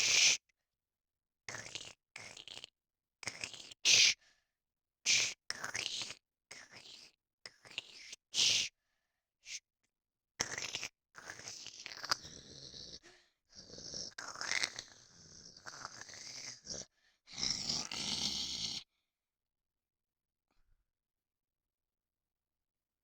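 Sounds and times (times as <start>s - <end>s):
breathy vocal noises: 10.4s - 18.9s.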